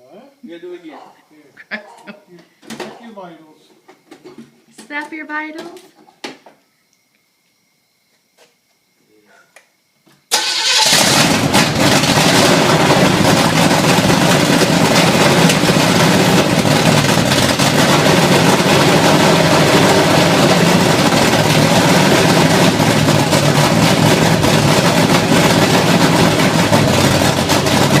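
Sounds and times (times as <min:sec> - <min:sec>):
v-eight engine running loud: 0:10.4 - 0:28.0.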